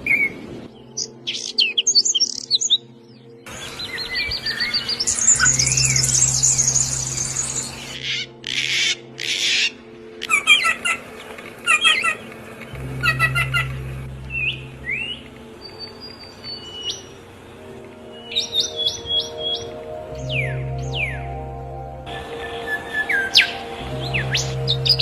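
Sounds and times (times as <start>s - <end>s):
songbirds chirping: 0.0s - 25.0s
thin whistled bird notes: 0.1s - 25.0s
raspy bird squawks: 8.0s - 11.0s.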